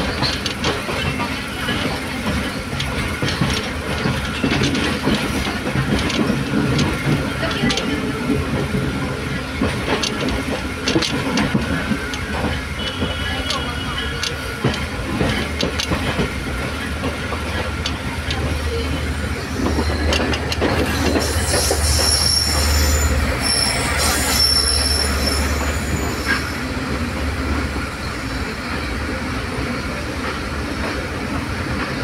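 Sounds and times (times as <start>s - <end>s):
train wheels rumbling: 0.0s - 32.0s
wheels clacking over rail joints: 0.0s - 32.0s
high-pitched wheel squeal: 20.9s - 26.6s.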